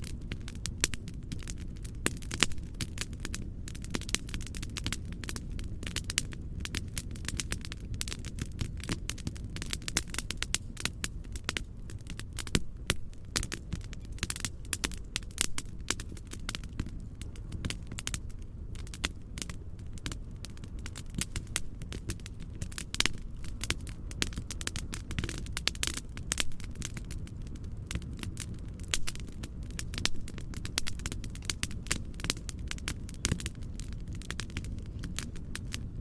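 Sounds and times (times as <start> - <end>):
fireplace crackling: 0.0 - 36.0.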